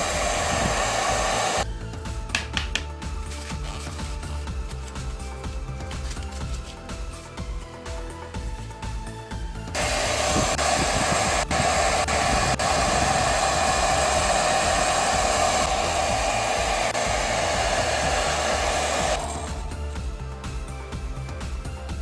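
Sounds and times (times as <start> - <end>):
electric motor hissing: 0.0 - 1.6, 9.8 - 19.9.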